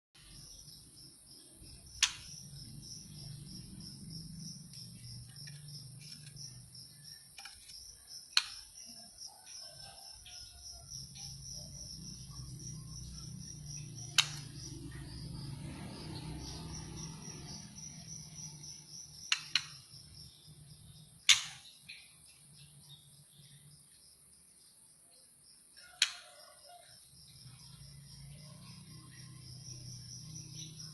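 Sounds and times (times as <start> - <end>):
insect chirping: 0.2 - 30.9
sharp clicks: 1.9 - 2.5, 7.4 - 8.7, 14.0 - 14.7, 19.2 - 19.8, 21.2 - 21.7, 26.0 - 26.2.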